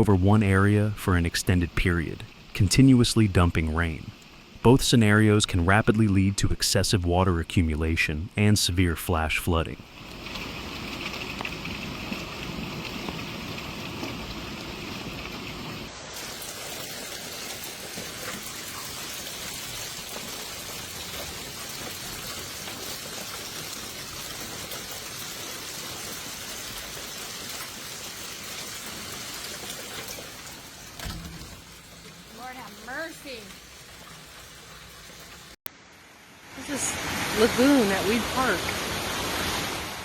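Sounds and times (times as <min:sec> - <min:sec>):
heavy rain hissing: 0:00.0 - 0:40.0.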